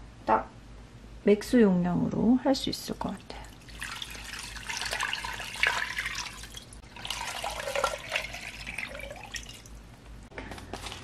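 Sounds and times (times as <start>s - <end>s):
water running from a tap: 3.5s - 9.8s
water splashing into a container: 3.6s - 9.7s.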